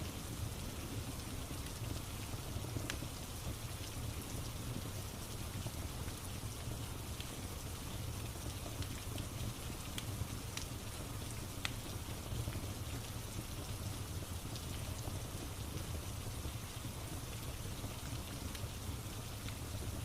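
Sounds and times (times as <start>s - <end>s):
steady rain falling: 0.0s - 20.0s
wood fire crackling and popping: 0.4s - 20.0s.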